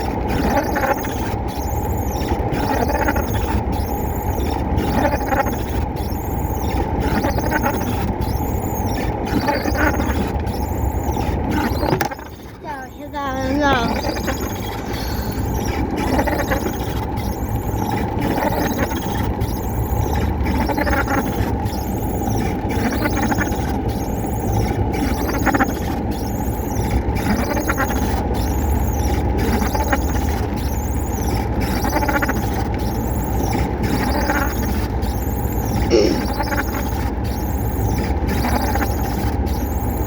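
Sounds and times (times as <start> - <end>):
high rising and falling squeal: 13.9 - 16.7.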